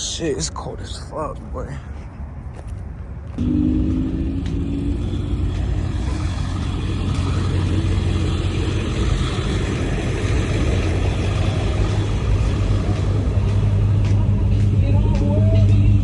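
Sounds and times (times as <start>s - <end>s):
motor vehicle droning: 3.3s - 16.0s.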